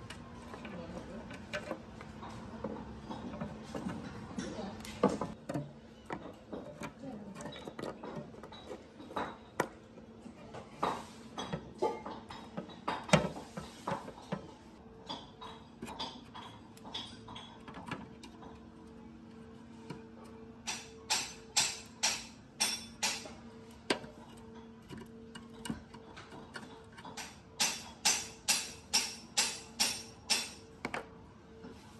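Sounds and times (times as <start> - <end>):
metal tools clinking and knocking: 1.3 - 18.6.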